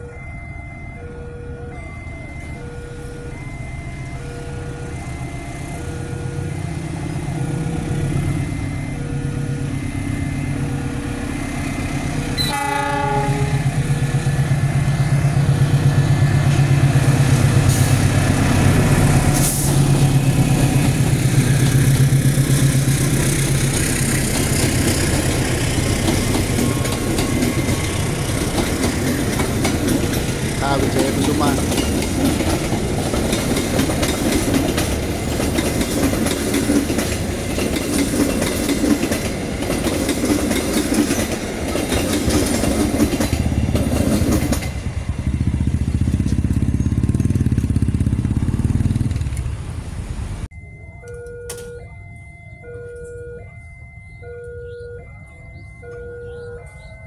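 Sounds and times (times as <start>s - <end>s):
level crossing alarm: 0.0s - 13.6s, 24.0s - 37.7s, 50.5s - 57.0s
locomotive engine rumble: 0.0s - 56.9s
locomotive horn blast: 12.4s - 13.9s
wheels clacking over rail joints: 13.7s - 48.0s.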